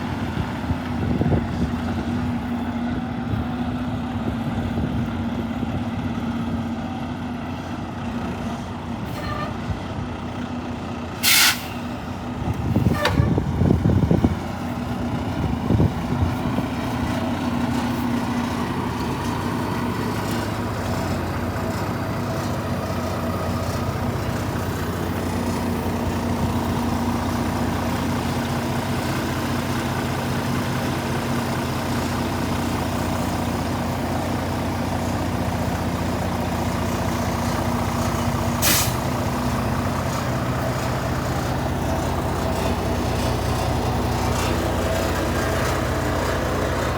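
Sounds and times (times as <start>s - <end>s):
diesel truck engine idling: 0.0s - 46.9s
hiss of released air: 11.2s - 11.9s, 38.6s - 39.0s.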